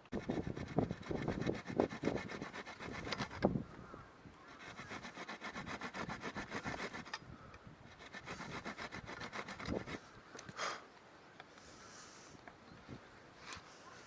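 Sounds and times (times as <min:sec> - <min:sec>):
hand saw cutting wood: 0:00.0 - 0:03.5, 0:04.5 - 0:07.2, 0:07.9 - 0:10.0.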